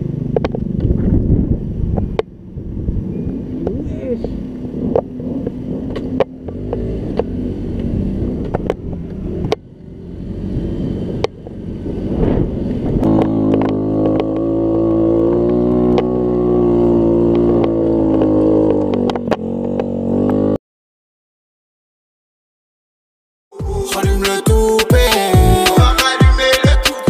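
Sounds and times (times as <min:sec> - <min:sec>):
scooter engine revving: 0:00.0 - 0:20.6.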